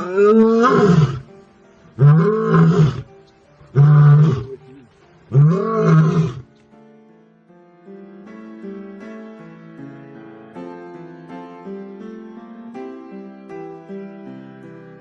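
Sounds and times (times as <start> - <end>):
lion roaring: 0.0 - 1.2, 2.0 - 3.1, 3.7 - 6.5.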